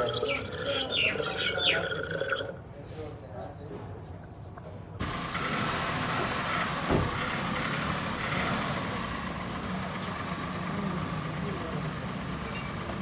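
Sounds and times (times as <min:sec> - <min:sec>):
motor vehicle noise: 0:05.0 - 0:13.0.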